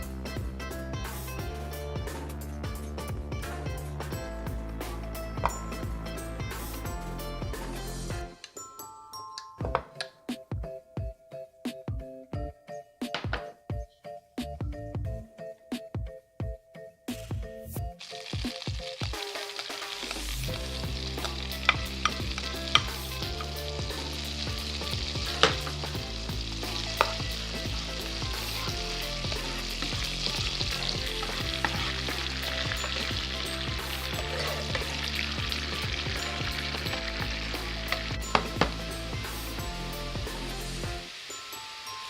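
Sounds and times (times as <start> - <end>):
food sizzling in a pan: 18.0 - 42.0.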